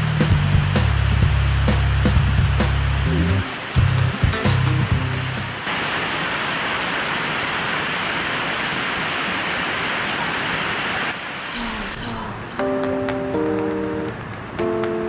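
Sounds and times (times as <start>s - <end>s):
music: 0.0s - 5.6s, 12.6s - 15.0s
waterfall rushing: 2.4s - 12.6s.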